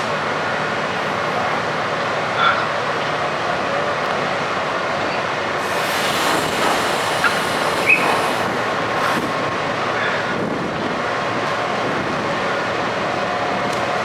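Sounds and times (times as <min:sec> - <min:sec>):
ship machinery and churning water: 0:05.4 - 0:12.0
high squeaks: 0:05.6 - 0:09.3.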